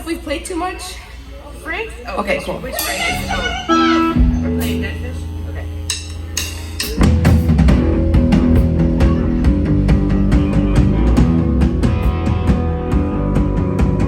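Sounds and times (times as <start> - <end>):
rock band playing live: 2.7 - 5.1, 5.9 - 14.0.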